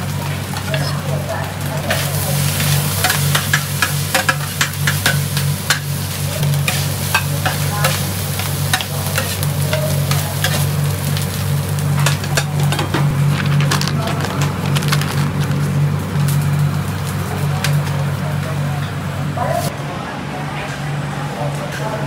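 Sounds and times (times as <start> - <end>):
food sizzling in a pan: 0.0 - 13.3
steady low hum: 0.0 - 22.0.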